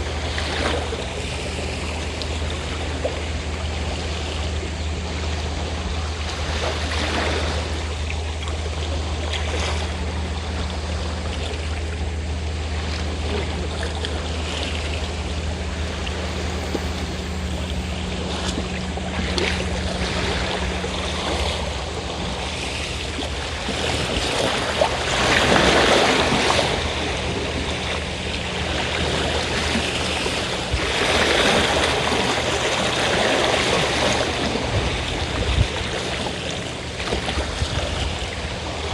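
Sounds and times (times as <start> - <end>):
boat engine humming: 0.0 - 38.9
waves washing on shore: 10.4 - 38.9.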